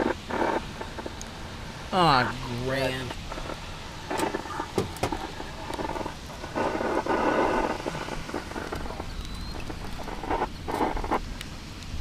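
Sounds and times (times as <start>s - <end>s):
scanner radio noise bursts: 0.0s - 11.3s
rain: 0.0s - 12.0s.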